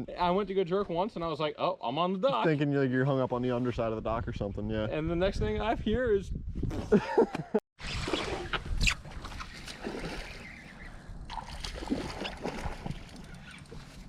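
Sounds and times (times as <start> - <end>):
sharp splash: 7.8 - 10.7, 11.3 - 13.4
water sloshing around boat: 7.9 - 14.0.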